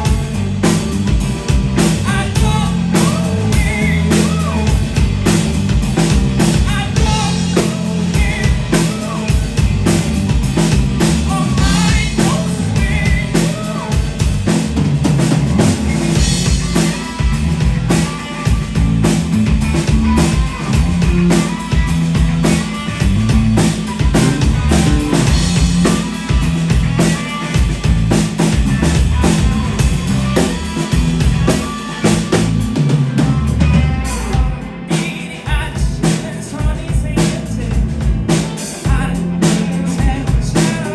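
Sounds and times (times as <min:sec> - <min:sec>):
drum kit beating: 0:00.0 - 0:40.9
live band playing: 0:00.0 - 0:40.9
person singing: 0:01.9 - 0:04.9, 0:06.5 - 0:09.6, 0:11.0 - 0:14.2, 0:33.3 - 0:40.9.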